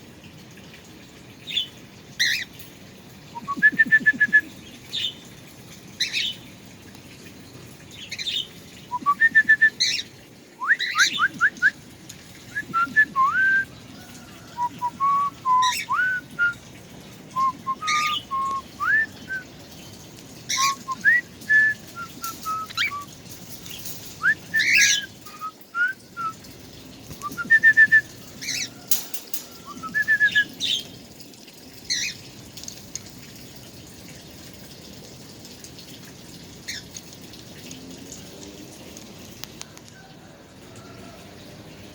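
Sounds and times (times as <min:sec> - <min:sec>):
songbird singing: 0:07.9 - 0:11.8, 0:12.4 - 0:16.6, 0:17.3 - 0:31.0.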